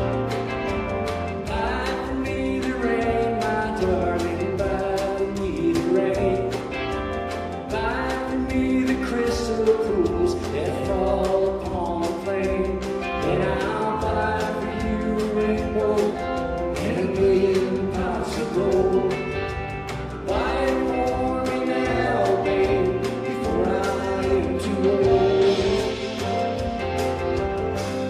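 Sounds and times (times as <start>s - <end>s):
live country-folk band: 0.0s - 28.0s
people singing: 1.4s - 6.5s, 13.2s - 19.6s, 20.2s - 26.4s.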